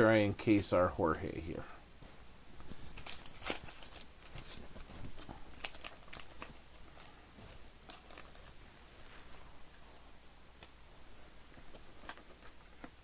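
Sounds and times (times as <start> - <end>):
plastic clicks and crinkles: 2.7 - 7.2, 7.8 - 9.3, 11.5 - 13.0.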